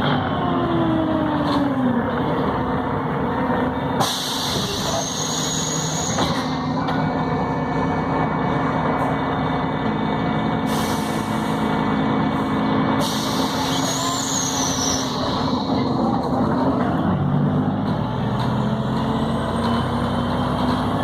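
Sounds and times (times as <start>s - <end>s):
bus engine hum: 0.0s - 21.0s
road and rain noise: 0.0s - 21.0s
hiss: 13.0s - 15.2s.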